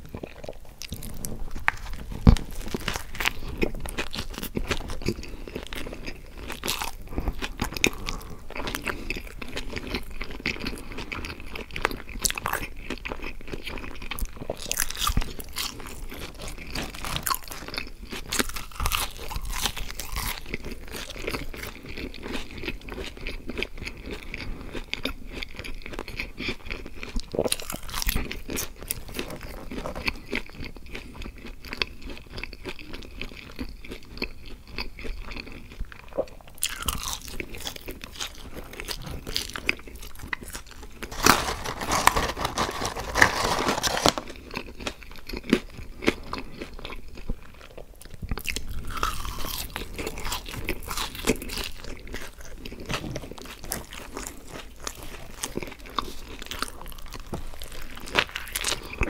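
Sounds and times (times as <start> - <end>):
chewing crunchy fries: 0.0 - 59.0.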